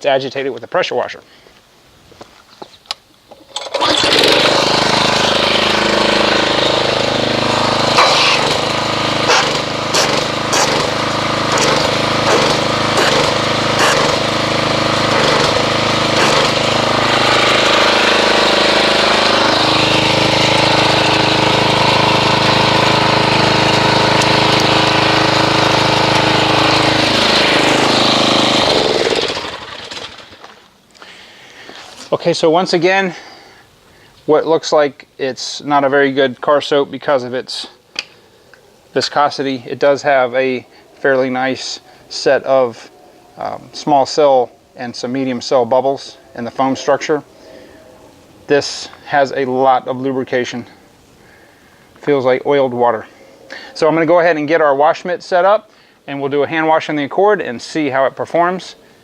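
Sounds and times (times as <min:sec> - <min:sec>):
pressure washer jet into bucket: 0:03.5 - 0:30.5.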